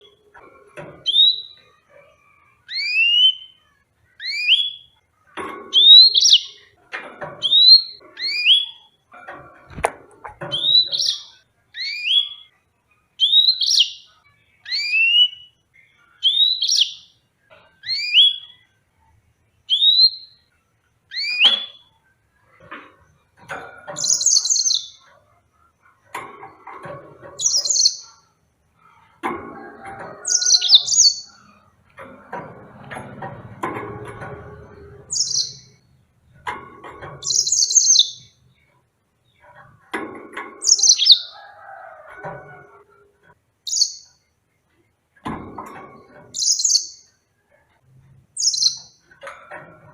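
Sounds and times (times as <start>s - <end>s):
canary singing whistled notes: 1.0s - 1.6s, 2.6s - 3.6s, 4.2s - 5.0s, 7.4s - 8.9s, 10.5s - 12.6s, 13.2s - 15.6s, 16.2s - 17.2s, 17.8s - 18.7s, 19.7s - 20.5s, 21.1s - 21.9s, 35.1s - 35.7s, 46.4s - 47.1s, 48.4s - 49.0s.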